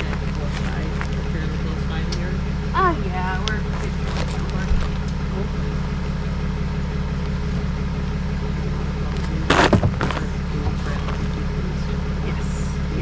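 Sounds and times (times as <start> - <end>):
vehicle engine humming: 0.0 - 13.0
loud clatter: 7.2 - 12.0.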